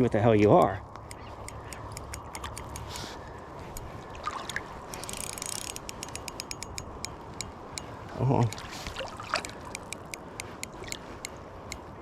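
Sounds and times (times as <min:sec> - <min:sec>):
fishing reel clicking: 0:00.4 - 0:03.0, 0:04.5 - 0:07.9, 0:09.4 - 0:11.3
river water rushing: 0:03.9 - 0:06.6, 0:07.3 - 0:11.2.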